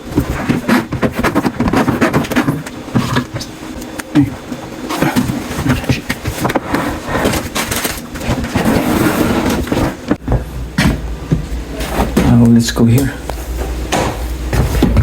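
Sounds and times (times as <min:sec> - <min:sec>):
hose rustling and scraping: 0:04.7 - 0:10.2.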